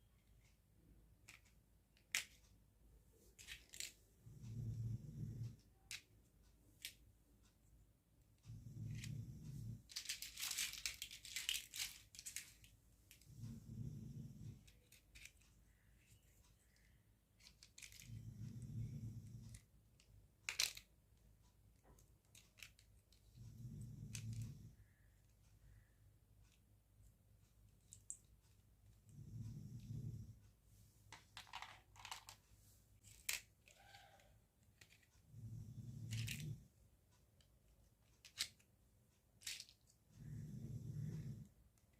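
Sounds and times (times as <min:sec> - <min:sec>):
plastic parts clicking: 0:01.2 - 0:02.5, 0:03.3 - 0:04.0, 0:09.8 - 0:13.2, 0:14.6 - 0:18.2, 0:19.5 - 0:21.0, 0:21.7 - 0:23.4, 0:31.1 - 0:32.4, 0:33.0 - 0:35.1, 0:38.1 - 0:38.8, 0:39.4 - 0:40.0
packaging crinkling and scraping: 0:09.8 - 0:12.7.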